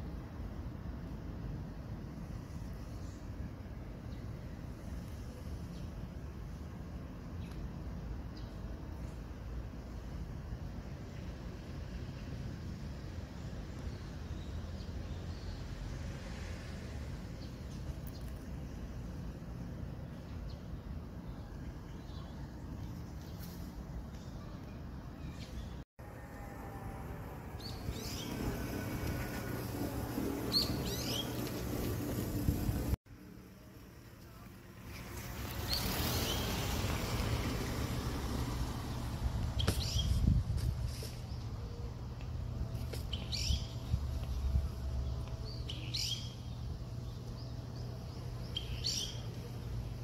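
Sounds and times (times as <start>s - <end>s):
songbird calling: 30.2s - 32.0s, 48.2s - 49.5s
small songbird chirping: 30.2s - 32.1s, 39.6s - 40.4s, 43.0s - 49.8s.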